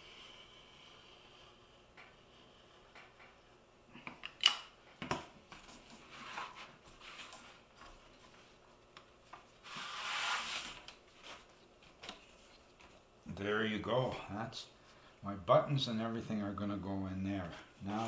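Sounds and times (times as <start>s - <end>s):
mat board scraping slide: 9.6s - 11.4s.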